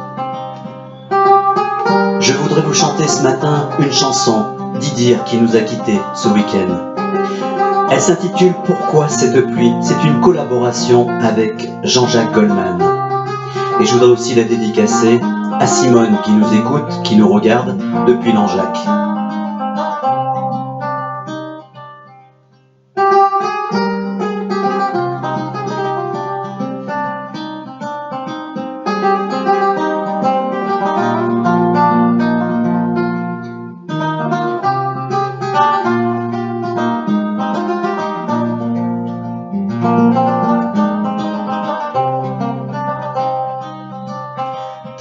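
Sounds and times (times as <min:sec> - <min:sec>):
held bass notes: 0:00.0 - 0:21.1
acoustic guitar picking: 0:00.0 - 0:45.0.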